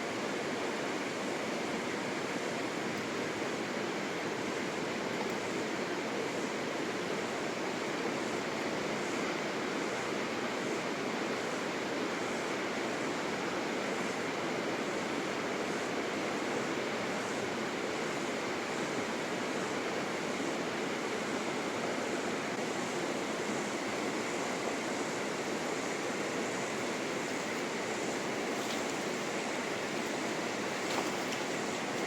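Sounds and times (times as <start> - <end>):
river water rushing: 22.6 - 32.0.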